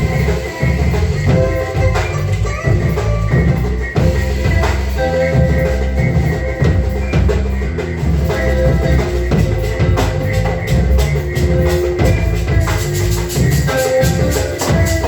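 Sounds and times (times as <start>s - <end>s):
bass line: 0.0s - 15.0s
drum kit beat: 0.0s - 15.0s
held melodic notes: 0.0s - 15.0s.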